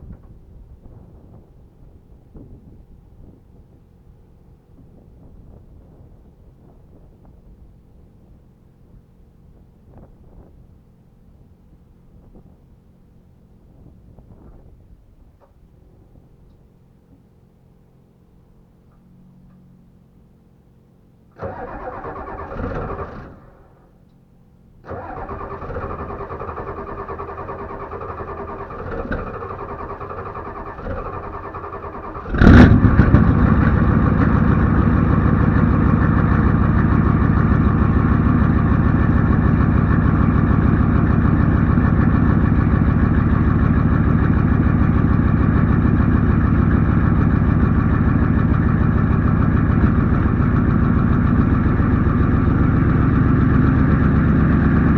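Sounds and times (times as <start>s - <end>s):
diesel engine idling: 20.9s - 54.9s
engine starter cranking: 21.4s - 23.8s, 24.8s - 43.3s.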